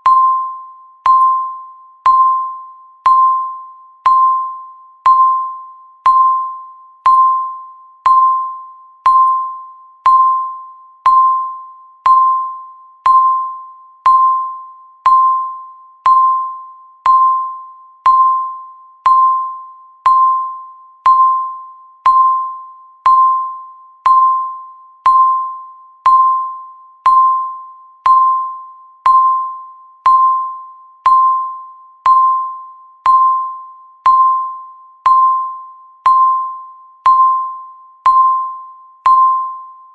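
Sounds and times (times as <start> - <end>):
electronic timer ticking: 0.0 - 39.6.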